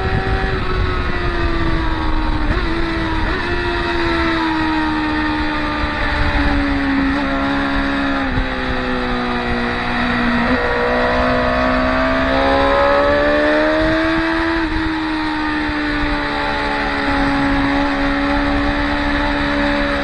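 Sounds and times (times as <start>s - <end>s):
racing motorcycles at high revs: 0.0s - 20.0s.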